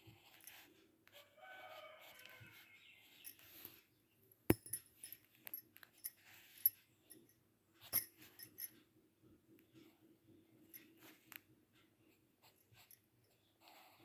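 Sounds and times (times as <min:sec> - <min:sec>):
sharp clicks and taps: 0:04.5 - 0:05.6.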